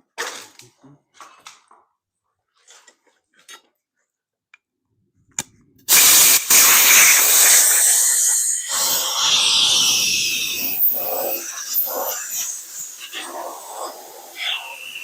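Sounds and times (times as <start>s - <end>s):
welding arc hissing: 5.9s - 15.0s.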